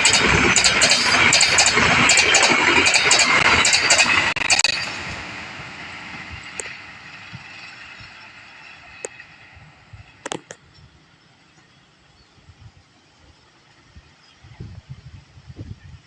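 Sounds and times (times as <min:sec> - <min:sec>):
train wheels clacking: 0:00.0 - 0:10.6
train rumble: 0:00.0 - 0:16.0.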